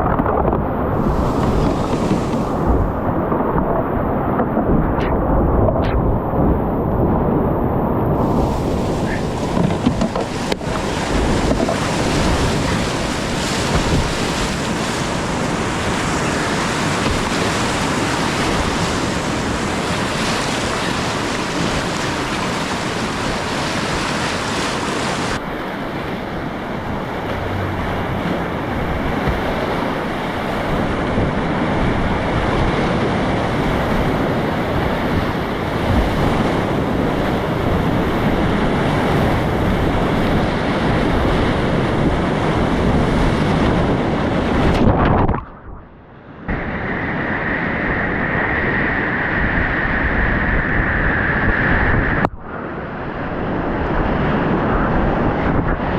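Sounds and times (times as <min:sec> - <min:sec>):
whitewater rushing: 0:00.9 - 0:04.3, 0:07.6 - 0:40.4.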